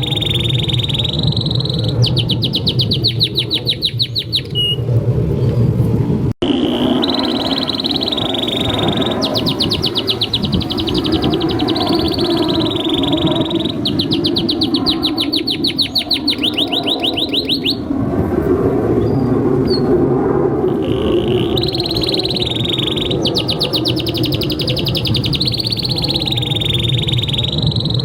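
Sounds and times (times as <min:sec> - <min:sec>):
canary singing trills: 0:00.0 - 0:04.8, 0:06.4 - 0:17.9, 0:20.7 - 0:28.0
steady low rumble: 0:00.0 - 0:28.0.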